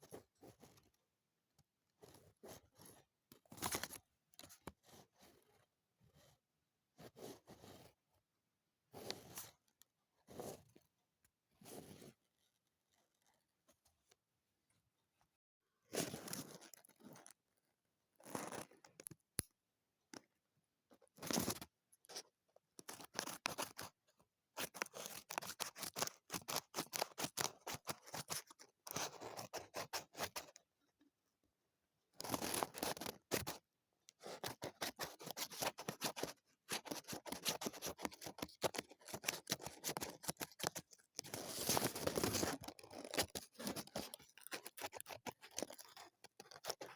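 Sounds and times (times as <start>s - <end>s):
scissors cutting paper: 22.8s - 23.9s, 24.6s - 30.5s, 32.2s - 33.6s, 34.2s - 46.9s.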